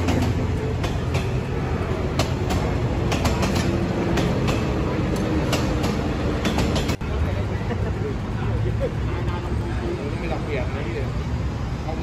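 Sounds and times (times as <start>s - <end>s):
wheels and couplings clacking: 0.0s - 7.3s
train cars rumbling past: 0.0s - 12.0s.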